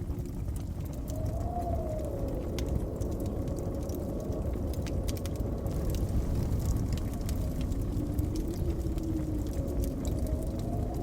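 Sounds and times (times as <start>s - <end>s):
blizzard wind blowing: 0.0s - 11.0s
wood fire crackling: 0.0s - 11.0s.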